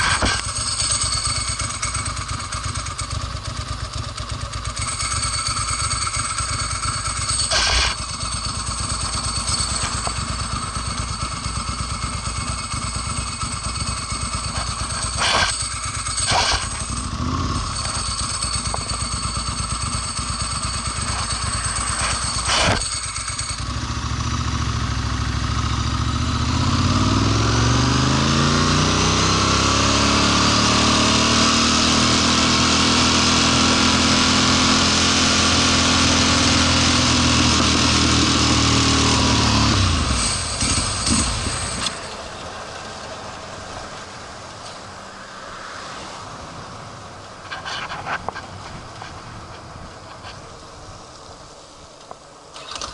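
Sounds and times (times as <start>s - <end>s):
motorcycle engine idling: 0.0s - 27.3s, 34.0s - 45.1s.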